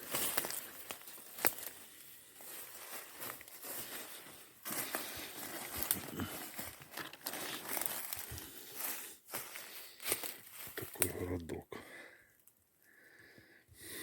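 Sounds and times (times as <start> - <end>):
twigs snapping: 0.0 - 1.8, 4.7 - 8.5
footsteps through leaf litter: 0.0 - 11.0.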